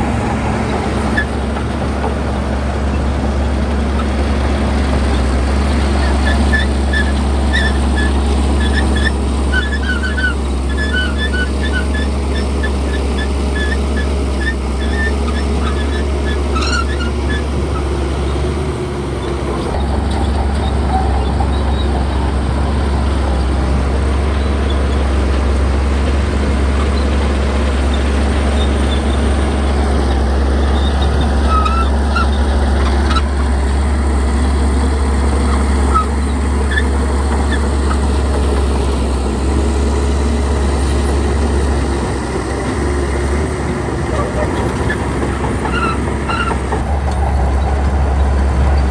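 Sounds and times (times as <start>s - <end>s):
bulldozer diesel engine running: 0.0s - 48.9s
short high squeaks: 6.1s - 18.4s, 30.0s - 33.5s.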